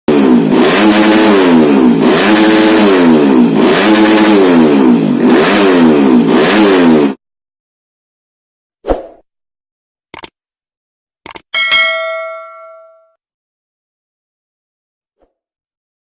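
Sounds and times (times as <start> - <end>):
motorcycle engine revving: 0.1 - 7.2.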